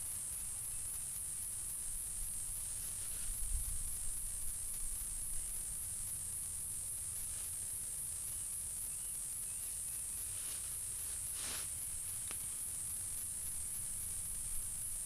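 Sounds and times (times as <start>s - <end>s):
insect chorus trilling: 0.0s - 15.0s
short rustle: 10.2s - 12.5s.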